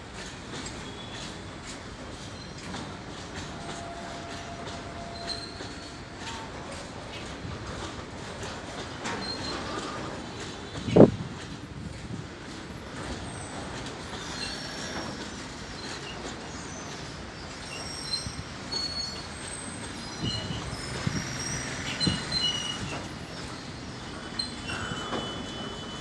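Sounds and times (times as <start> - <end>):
high-pitched wheel squeals: 3.5 - 6.4, 17.6 - 26.0.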